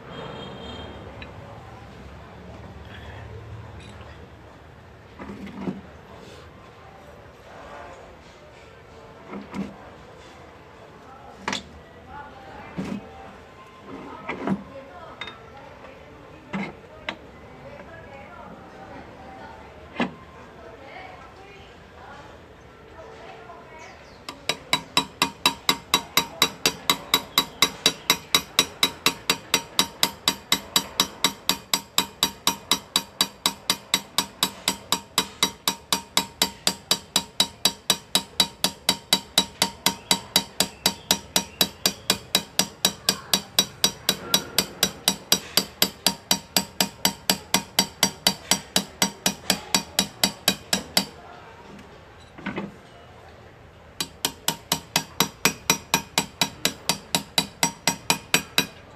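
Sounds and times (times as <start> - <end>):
hammer tapping chisel into metal: 24.3 - 51.2, 54.0 - 58.9.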